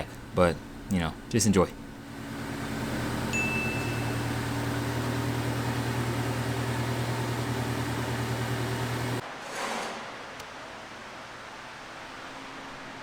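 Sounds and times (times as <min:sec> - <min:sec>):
brief high beep: 0:03.3 - 0:04.4
mechanical hum with hiss: 0:07.7 - 0:13.0.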